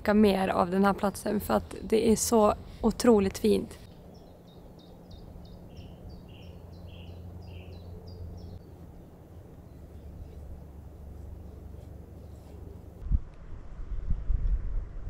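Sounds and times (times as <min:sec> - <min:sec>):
steady low rumble: 0:00.0 - 0:15.0
songbird singing high notes: 0:04.1 - 0:08.6.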